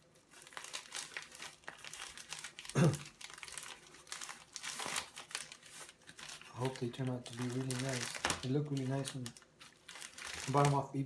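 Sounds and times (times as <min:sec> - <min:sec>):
packaging crinkling and tearing: 0:00.0 - 0:11.0
person grunting: 0:02.8 - 0:03.0.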